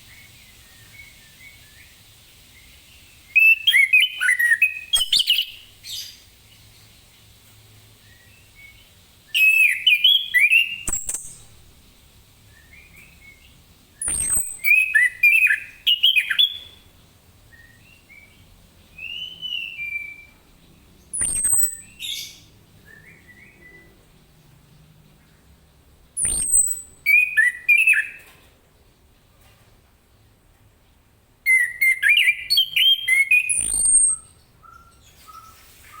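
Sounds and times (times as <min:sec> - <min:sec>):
bird singing whistled phrases: 0:03.3 - 0:06.2, 0:08.0 - 0:11.7, 0:12.5 - 0:16.8, 0:17.5 - 0:18.4, 0:19.0 - 0:20.4, 0:21.1 - 0:24.0, 0:26.2 - 0:28.2, 0:31.5 - 0:36.0.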